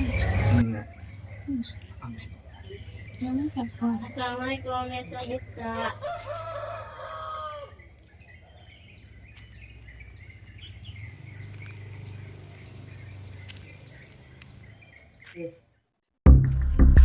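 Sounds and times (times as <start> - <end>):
small birds chirping: 0.0 - 16.0
rooster crowing: 5.6 - 7.9.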